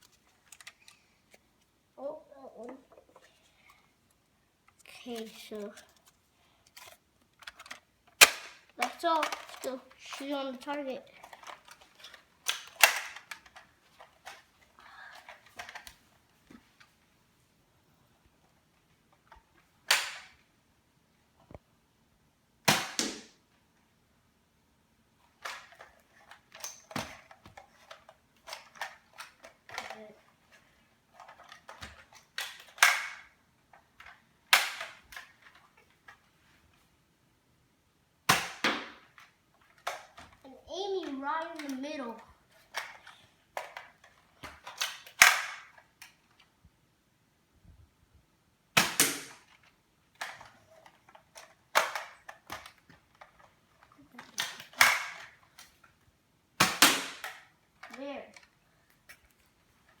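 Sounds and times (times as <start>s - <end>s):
plastic toy blaster clicks: 6.8s - 10.2s, 11.2s - 13.6s, 19.9s - 20.4s, 31.2s - 33.3s, 41.6s - 41.8s, 44.6s - 46.2s, 54.4s - 55.7s, 56.6s - 58.5s
toy blaster firing pops: 8.2s - 9.4s, 22.7s - 23.4s, 48.8s - 49.4s, 56.6s - 57.4s
loud sharp snap: 19.9s - 20.3s, 22.7s - 23.4s, 48.8s - 49.4s, 56.6s - 57.4s.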